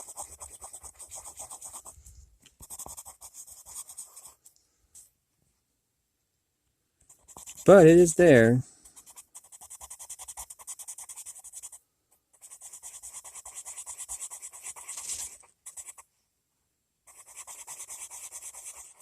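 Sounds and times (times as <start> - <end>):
pencil scratching on paper: 0.0 - 2.0, 2.6 - 4.4, 7.1 - 8.2, 8.8 - 16.1, 17.1 - 19.0.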